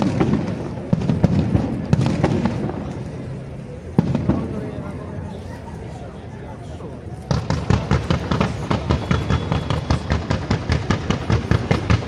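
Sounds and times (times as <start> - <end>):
fireworks launch bangs: 0.0 - 3.3, 3.9 - 4.8, 7.3 - 12.0.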